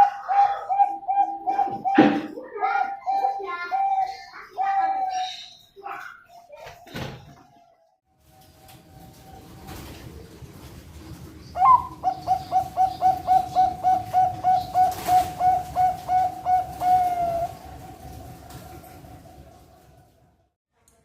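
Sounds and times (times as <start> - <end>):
dove cooing: 0.0 - 5.4, 11.5 - 20.0.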